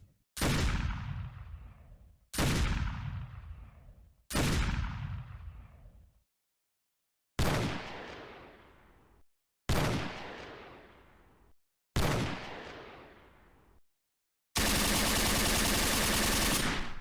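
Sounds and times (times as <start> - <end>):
gunshots with echoing decay: 0.4 - 5.8, 7.4 - 9.0, 9.7 - 11.3, 12.0 - 13.5, 14.6 - 17.0.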